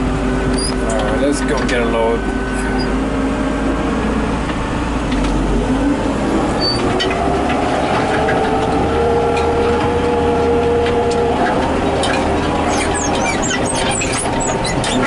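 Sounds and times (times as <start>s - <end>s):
tractor diesel engine running: 0.0s - 15.0s
light rattles and clicks: 10.8s - 15.0s.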